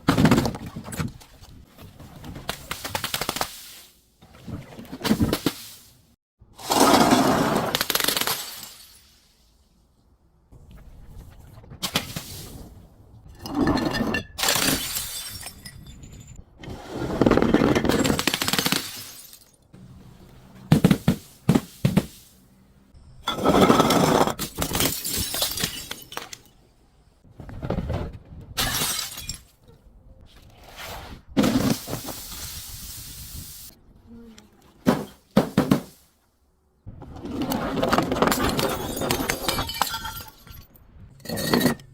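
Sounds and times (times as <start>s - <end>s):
glass bottles shattering: 7.8s - 9.2s, 13.4s - 16.4s, 17.8s - 19.6s, 23.3s - 26.6s, 28.6s - 29.6s, 38.3s - 41.9s.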